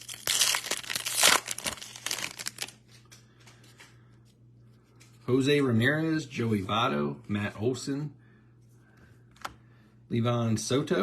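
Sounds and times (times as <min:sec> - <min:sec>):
foil wrapper tearing and crinkling: 0:00.0 - 0:02.9.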